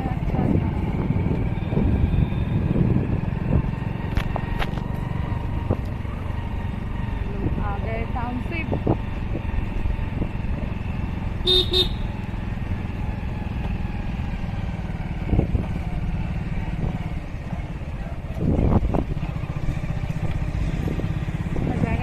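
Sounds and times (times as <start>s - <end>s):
motorcycle engine rumble: 0.0s - 22.0s
horn tooting: 11.4s - 12.1s.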